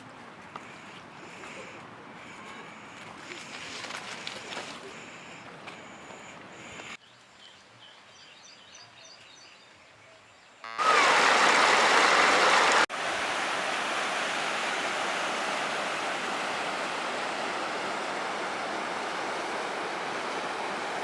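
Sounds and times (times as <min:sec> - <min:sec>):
waterfall rushing: 0:10.8 - 0:21.0.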